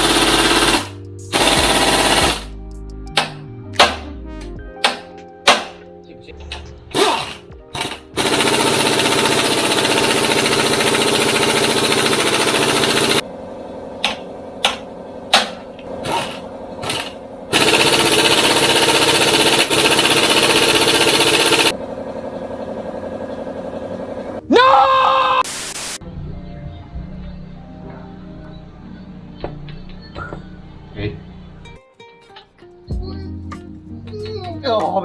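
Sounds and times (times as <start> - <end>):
impact wrench hammering on bolt: 0.0 - 2.5, 3.2 - 4.1, 4.8 - 5.8, 7.0 - 13.2, 14.0 - 21.8.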